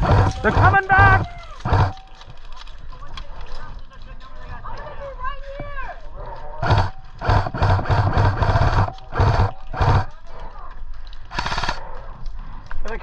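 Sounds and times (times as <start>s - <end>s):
gearbox motor whirring: 0.0s - 2.0s, 6.6s - 10.1s, 11.3s - 11.8s
airsoft gun firing bursts: 0.0s - 2.2s, 6.6s - 10.2s, 11.3s - 11.8s.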